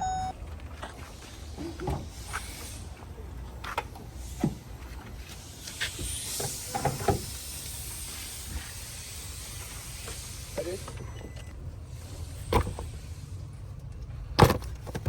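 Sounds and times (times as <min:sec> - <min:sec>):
low steady rumble: 0:00.0 - 0:00.8
hiss: 0:02.0 - 0:03.0, 0:05.3 - 0:11.0
clicks and knocks of car parts: 0:14.3 - 0:15.0.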